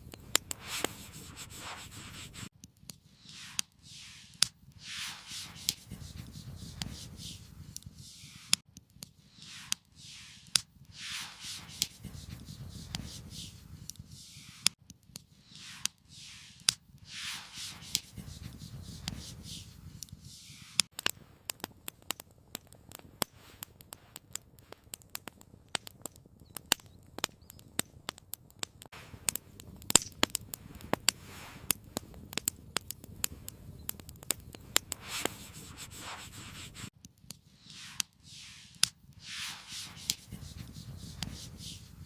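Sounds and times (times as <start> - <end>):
campfire crackling: 0.0 - 42.0
soft hissing: 0.1 - 2.5, 3.1 - 8.6, 9.2 - 20.9, 30.6 - 32.0, 33.3 - 36.9, 37.5 - 42.0.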